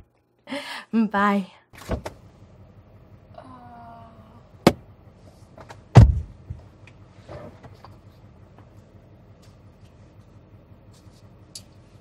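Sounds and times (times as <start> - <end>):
car door thud: 5.6 - 6.6.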